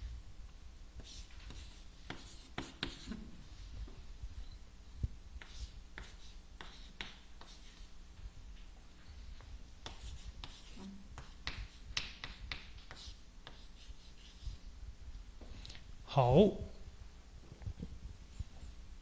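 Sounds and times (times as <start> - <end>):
faint low hum: 0.0 - 19.0
pen scratching on paper: 1.0 - 3.2, 5.4 - 7.9.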